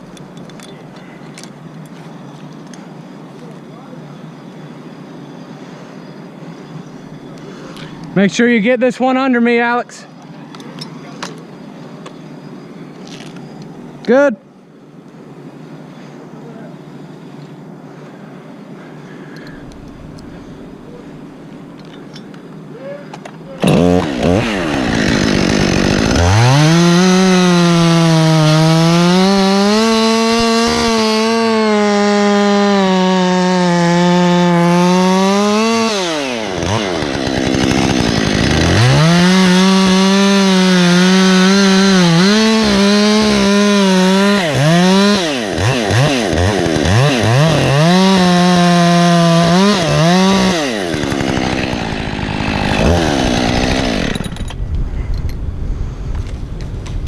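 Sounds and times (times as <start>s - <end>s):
chainsaw cutting wood: 23.6s - 54.6s.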